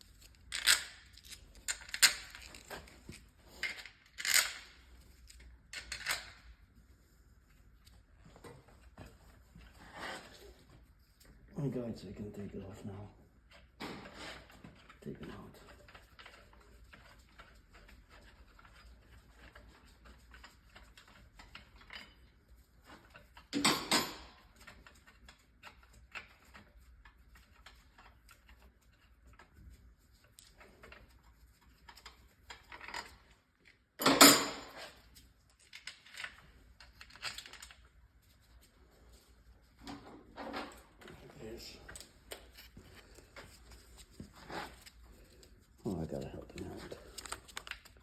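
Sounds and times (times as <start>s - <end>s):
metal tools clicking and rattling: 0.2s - 6.4s, 22.9s - 26.6s.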